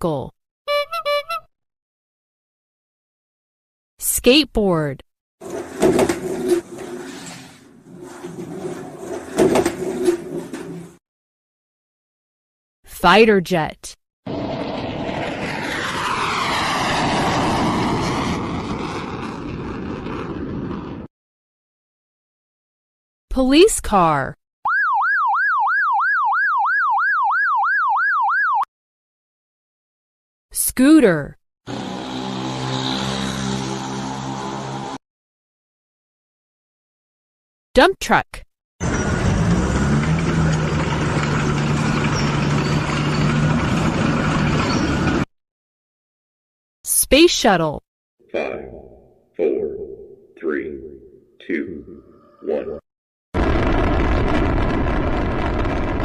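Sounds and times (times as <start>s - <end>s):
fighter jet passing: 14.3s - 21.1s, 31.7s - 35.0s.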